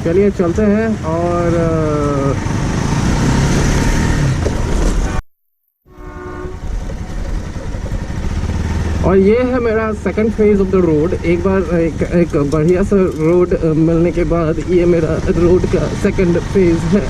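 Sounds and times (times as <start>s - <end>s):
vehicle noise: 0.0s - 5.2s, 5.9s - 17.0s
multi-tone horn: 4.9s - 7.2s.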